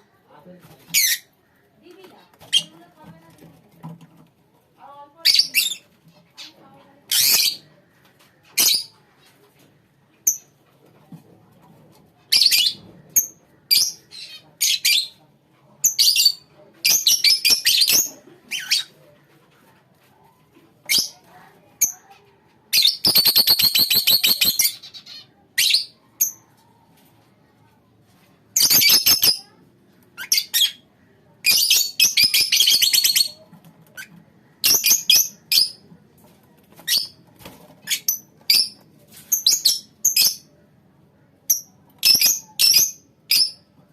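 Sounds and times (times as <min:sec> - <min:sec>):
lovebirds chirping and squawking: 0:00.6 - 0:03.2, 0:05.2 - 0:10.6, 0:12.0 - 0:15.2, 0:15.8 - 0:19.2, 0:20.8 - 0:27.1, 0:28.6 - 0:35.9, 0:36.7 - 0:40.6, 0:41.4 - 0:43.7
lovebirds rapid chattering: 0:00.6 - 0:04.3, 0:05.2 - 0:11.0, 0:11.6 - 0:15.2, 0:15.8 - 0:26.6, 0:28.6 - 0:40.5.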